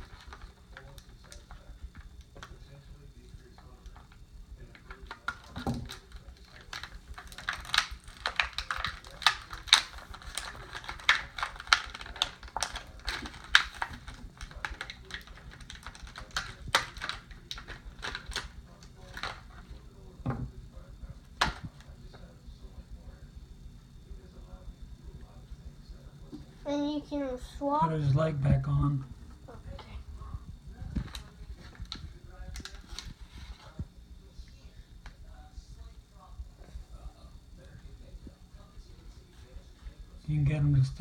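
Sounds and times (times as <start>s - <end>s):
plastic pieces knocking: 3.6s - 20.6s, 21.4s - 21.9s
plastic toy pieces clicking together: 4.8s - 18.5s.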